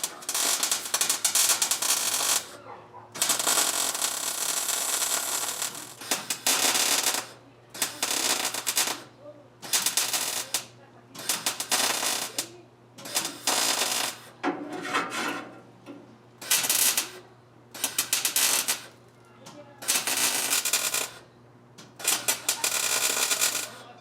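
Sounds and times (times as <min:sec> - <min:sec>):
welder crackling: 0:00.0 - 0:02.6, 0:03.2 - 0:14.4, 0:16.3 - 0:19.1, 0:19.8 - 0:21.2, 0:21.8 - 0:23.9.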